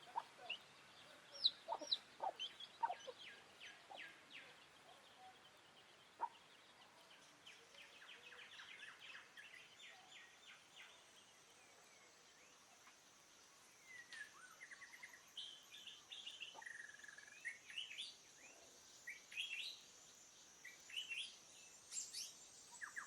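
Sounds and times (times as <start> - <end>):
faint outdoor hiss: 0.0 - 23.0
birds calling and chirping: 1.4 - 4.1.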